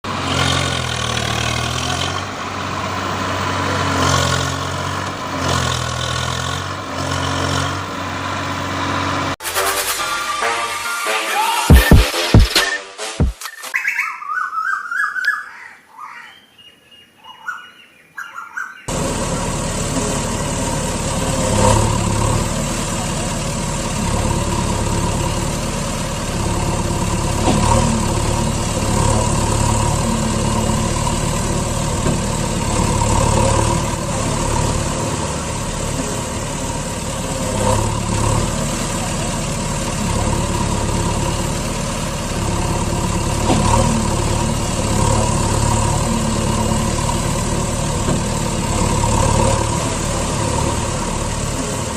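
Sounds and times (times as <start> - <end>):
diesel engine running: 0.0 - 10.5, 18.9 - 51.9
chirping: 13.4 - 19.0.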